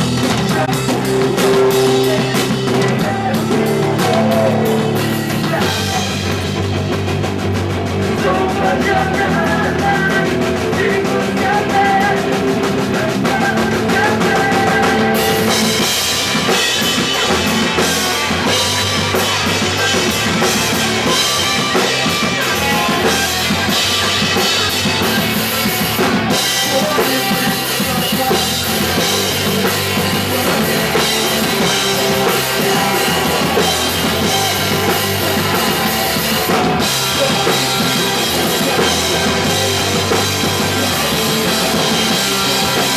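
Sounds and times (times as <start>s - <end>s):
drum kit and cymbals: 0.0s - 42.9s
punk rock band playing: 0.0s - 42.9s
sustained guitar chords: 27.4s - 42.9s.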